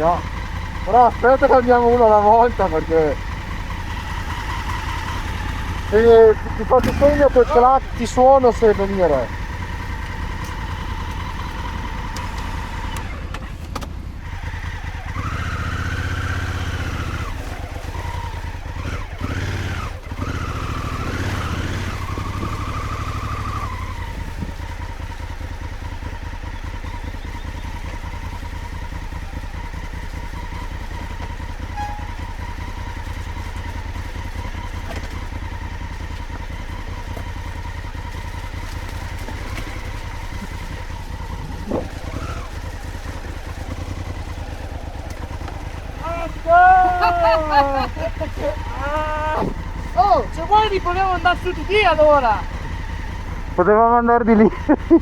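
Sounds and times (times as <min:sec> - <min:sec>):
motorcycle engine revving and idling: 0:00.0 - 0:55.0.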